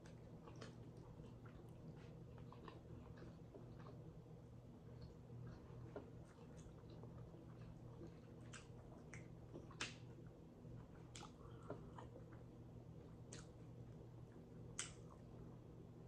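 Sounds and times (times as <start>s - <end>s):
person chewing: 0.0s - 4.2s, 4.8s - 13.8s
wet mouth clicks: 14.8s - 15.0s.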